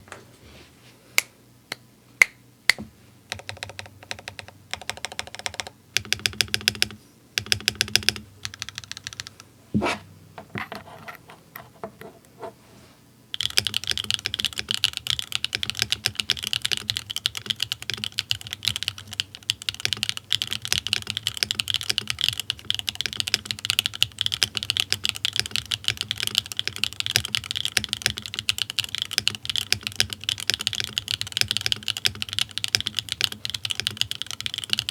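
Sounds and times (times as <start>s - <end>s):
mechanical keyboard typing: 3.3s - 9.4s, 13.4s - 34.9s.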